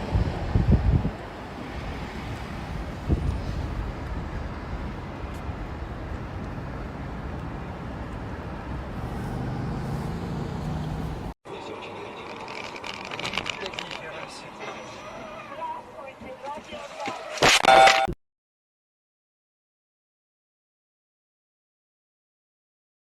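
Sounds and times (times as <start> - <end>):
car engine and road rumble: 0.0 - 16.8.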